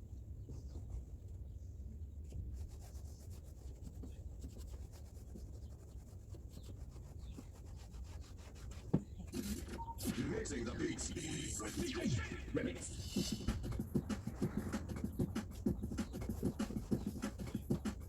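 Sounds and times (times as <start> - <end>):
faint rubbing and scratching: 0.4 - 18.0
steady low rumble: 10.1 - 17.0.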